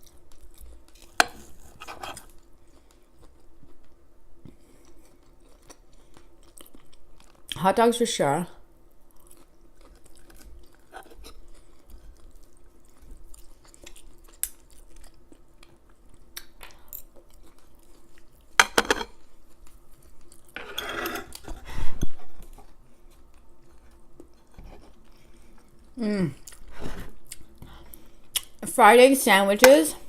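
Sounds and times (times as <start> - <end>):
chewing: 0.0 - 7.6, 9.0 - 20.6, 22.4 - 28.6
fork scraping on a plate: 20.6 - 21.6.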